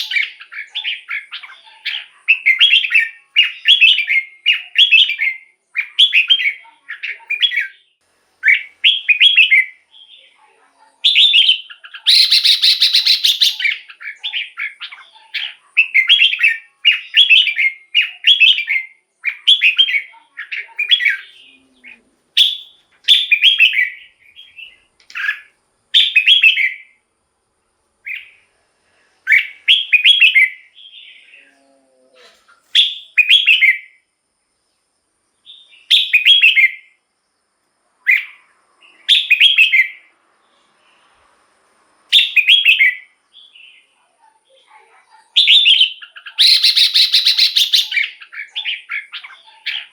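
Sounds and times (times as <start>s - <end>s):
harsh buzzy bird call: 0.0s - 10.0s, 11.0s - 26.9s, 45.4s - 49.9s
bird singing warbled phrases: 0.0s - 27.1s, 28.0s - 28.6s, 29.2s - 34.1s, 35.4s - 37.0s, 38.0s - 41.1s, 42.1s - 49.9s.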